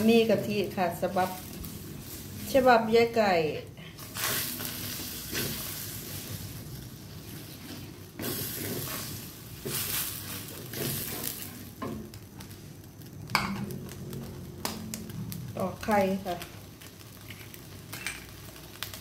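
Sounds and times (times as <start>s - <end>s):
curry sizzling in a wok: 0.0s - 19.0s
wooden spatula scraping pan: 7.2s - 11.6s.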